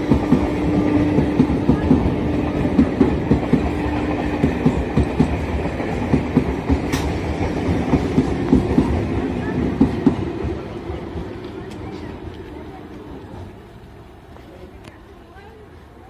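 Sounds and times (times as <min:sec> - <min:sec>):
train wheels clattering: 0:00.0 - 0:14.0
train rumble: 0:00.0 - 0:16.0.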